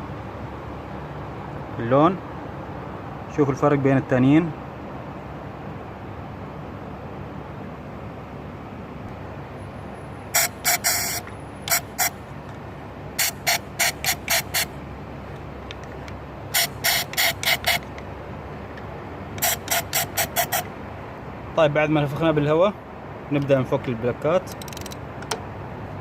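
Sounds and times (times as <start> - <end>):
compressed air blow gun blasts: 10.4 - 12.1, 13.2 - 14.7, 16.5 - 17.9, 19.4 - 20.7.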